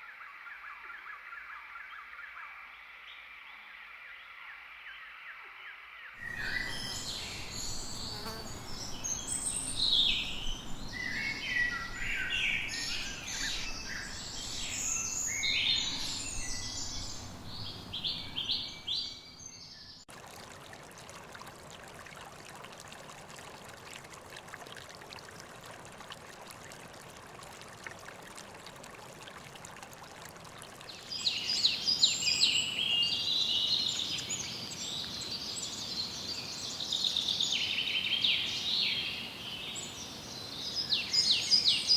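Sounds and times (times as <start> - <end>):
steady hiss: 6.2 - 18.8
birds chirping: 6.2 - 20.0.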